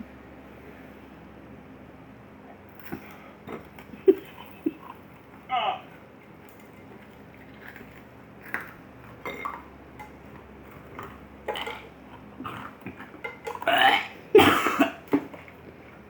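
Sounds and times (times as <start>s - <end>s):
man gagging: 5.5s - 5.9s.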